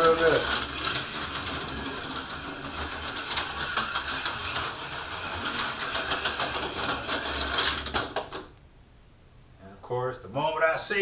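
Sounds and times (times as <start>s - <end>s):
slot car clicking and rattling: 0.0s - 8.5s.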